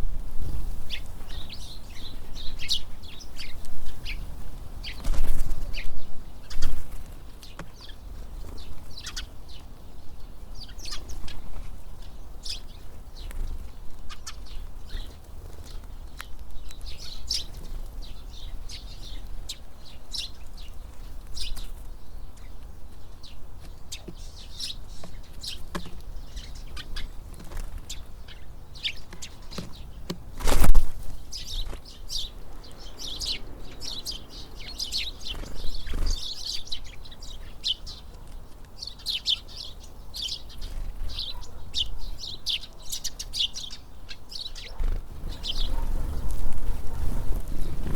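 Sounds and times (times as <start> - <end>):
wind rumble on microphone: 0.0 - 7.3, 29.4 - 37.5, 44.6 - 47.9
birds chirping: 0.0 - 47.9.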